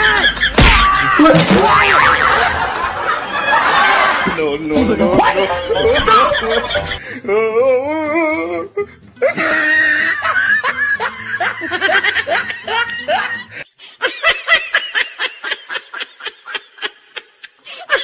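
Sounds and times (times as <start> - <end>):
loud laughter: 0.0 - 7.0, 9.2 - 18.0
music: 4.2 - 13.7.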